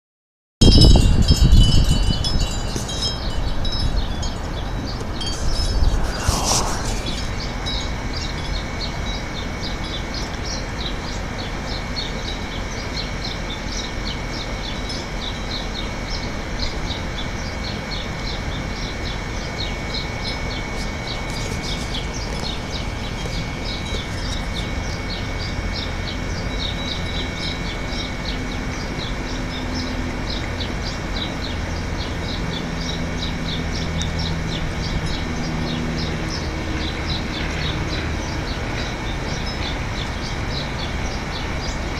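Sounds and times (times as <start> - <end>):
steady background rush: 2.5 - 9.6
faint low drone: 2.7 - 10.0
small birds chirping: 19.0 - 41.9.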